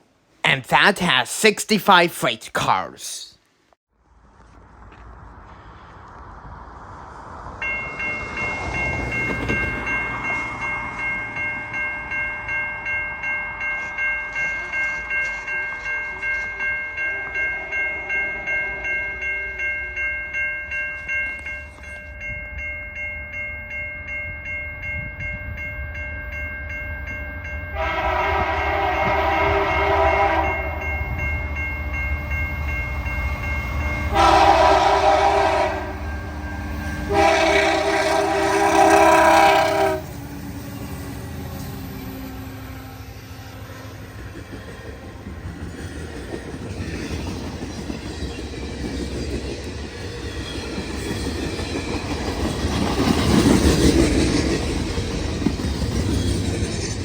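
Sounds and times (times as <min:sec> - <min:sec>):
level crossing warning bell: 0:07.6 - 0:40.0
train horn blasts: 0:27.8 - 0:30.9, 0:34.0 - 0:36.2, 0:37.0 - 0:40.1.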